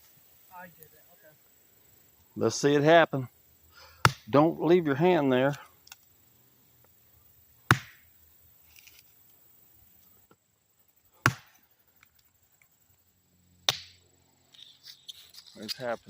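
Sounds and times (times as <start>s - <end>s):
axe chopping wood: 4.0s - 4.3s, 7.7s - 8.0s, 11.2s - 11.6s, 13.7s - 14.0s.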